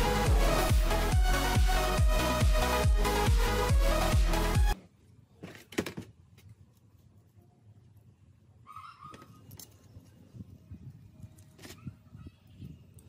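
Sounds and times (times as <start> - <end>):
chicken calling faintly: 8.6 - 9.4.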